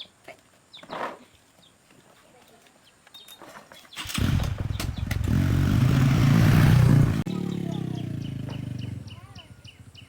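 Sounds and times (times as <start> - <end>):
engine revving: 4.0 - 9.2.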